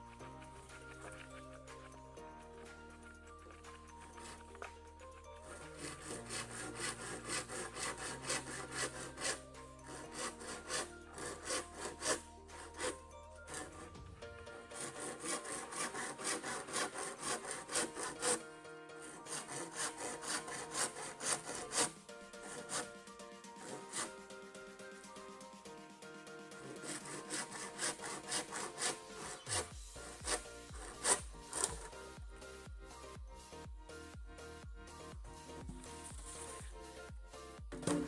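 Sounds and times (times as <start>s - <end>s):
hand saw cutting bamboo: 0.1s - 1.9s, 2.6s - 4.8s, 5.4s - 18.4s, 19.0s - 24.2s, 26.6s - 32.2s, 35.5s - 36.8s, 37.7s - 38.0s.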